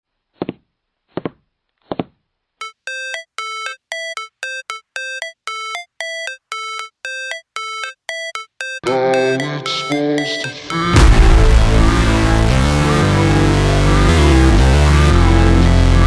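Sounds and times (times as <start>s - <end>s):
synthesized beeping tune: 2.6s - 13.2s.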